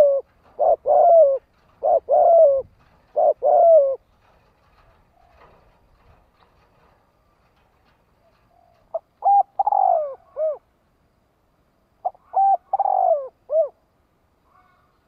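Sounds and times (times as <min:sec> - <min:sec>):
dove cooing: 0:00.0 - 0:05.5, 0:08.2 - 0:10.7, 0:12.0 - 0:13.8.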